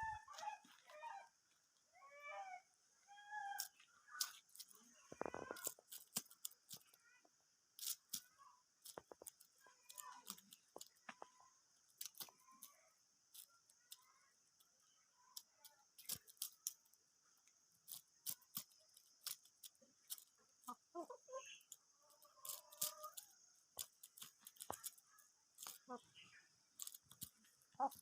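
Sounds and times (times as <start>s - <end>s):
hens clucking: 0.0s - 1.3s, 20.6s - 23.2s, 27.2s - 28.0s.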